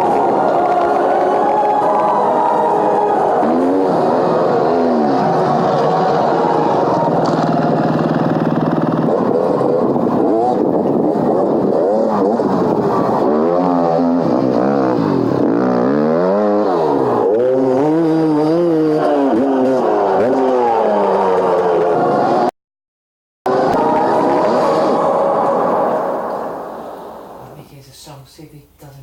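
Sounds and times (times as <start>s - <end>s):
dirt bike engine revving: 0.0s - 22.5s.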